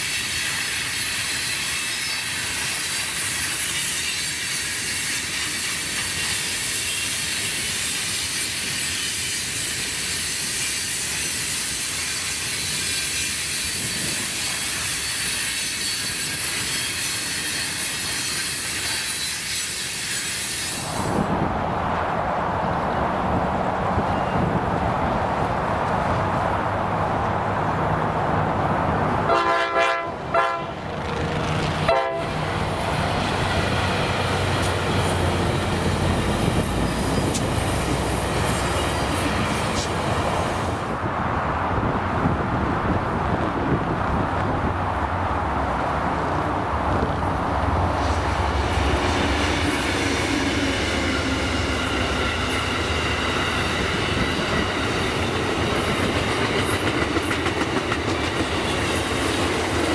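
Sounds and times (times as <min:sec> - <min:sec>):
train wheels rumbling on rails: 0:00.0 - 0:59.9
train horn blasts: 0:29.3 - 0:30.9, 0:31.8 - 0:32.8.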